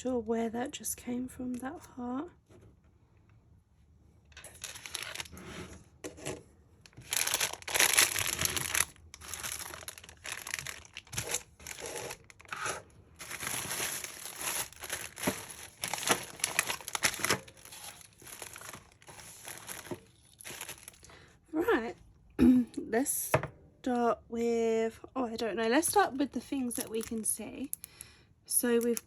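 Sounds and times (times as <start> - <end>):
packaging crinkling and rustling: 4.4 - 21.2, 25.9 - 27.9, 28.8 - 29.0.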